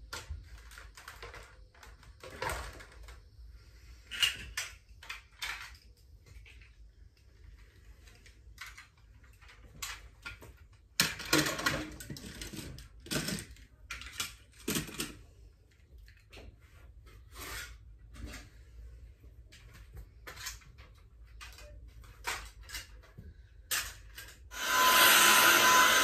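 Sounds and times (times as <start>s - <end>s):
clatter and rustling: 4.0s - 24.5s
objects knocking and clicking: 8.1s - 16.6s.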